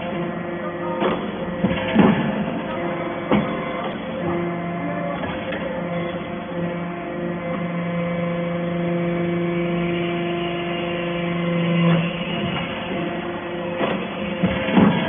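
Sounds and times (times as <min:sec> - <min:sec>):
hydraulic baler motor humming: 0:00.0 - 0:15.0.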